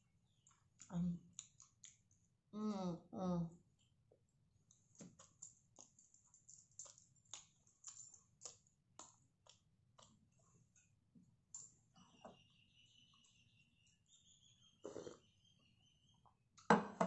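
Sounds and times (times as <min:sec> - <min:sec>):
wet chewing mouth clicks: 0:00.4 - 0:02.2, 0:04.7 - 0:10.3.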